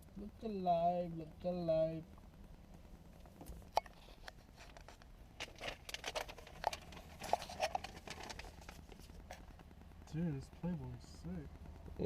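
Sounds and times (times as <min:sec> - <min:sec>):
low steady hum: 0:00.0 - 0:12.0
faint rustling: 0:02.7 - 0:11.9.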